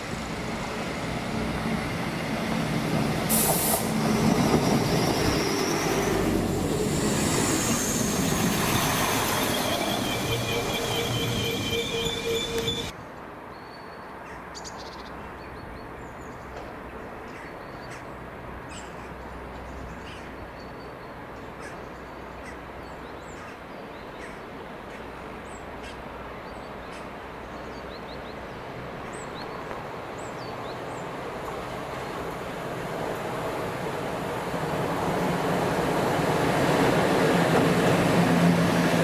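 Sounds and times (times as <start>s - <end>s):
electric locomotive rumbling: 0.0s - 13.0s, 28.6s - 39.0s
birds chirping: 7.6s - 12.9s.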